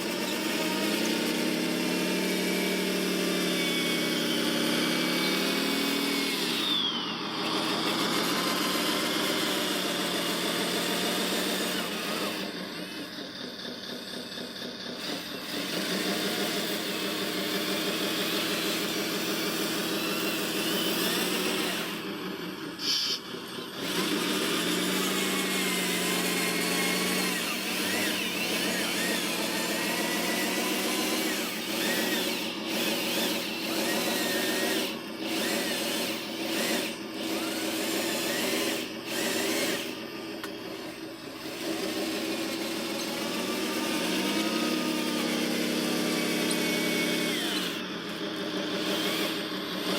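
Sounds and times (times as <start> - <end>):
small electric motors whining: 0.0 - 49.9.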